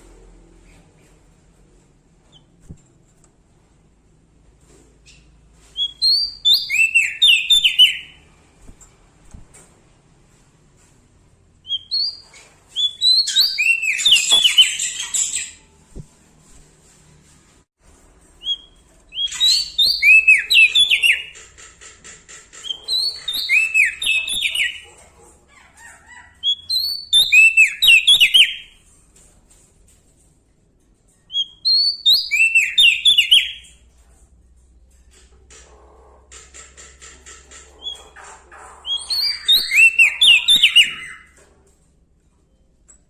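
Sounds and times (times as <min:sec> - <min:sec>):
bird whistling and chattering: 0:05.8 - 0:08.2, 0:11.7 - 0:12.2, 0:12.8 - 0:15.6, 0:18.4 - 0:21.4, 0:22.6 - 0:24.8, 0:26.4 - 0:28.7, 0:31.4 - 0:33.6, 0:37.8 - 0:41.4.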